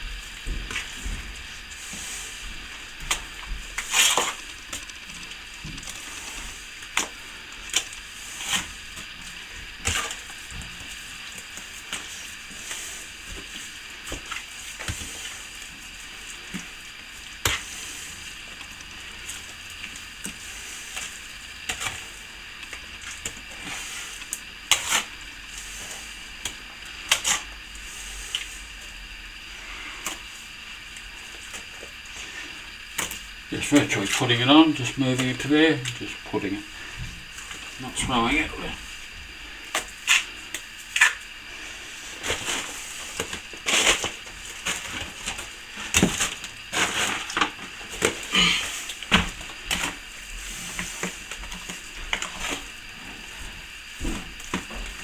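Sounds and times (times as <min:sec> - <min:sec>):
steady hiss: 0:05.2 - 0:55.0.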